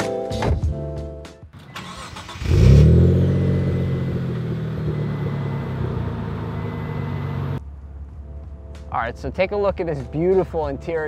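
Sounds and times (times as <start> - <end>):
car engine starting and idling: 1.6 - 8.0.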